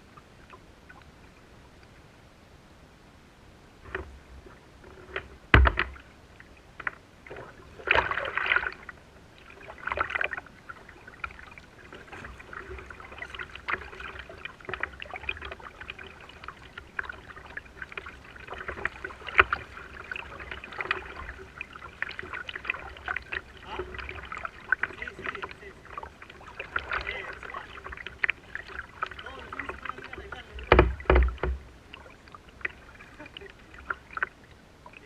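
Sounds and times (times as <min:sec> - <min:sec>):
water splashing around kayak: 0:03.5 - 0:35.0
knocks on kayak hull: 0:05.5 - 0:06.0, 0:30.6 - 0:31.7.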